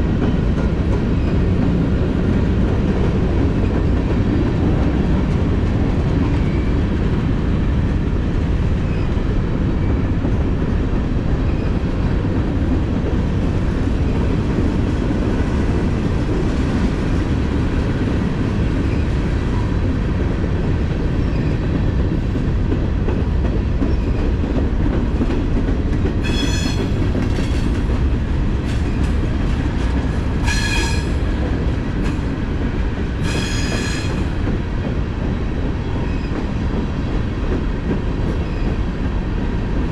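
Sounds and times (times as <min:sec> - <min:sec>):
freight train cars rumbling: 0:00.0 - 0:39.9
high-pitched wheel squeals: 0:26.2 - 0:26.9, 0:30.4 - 0:31.2, 0:33.2 - 0:34.2.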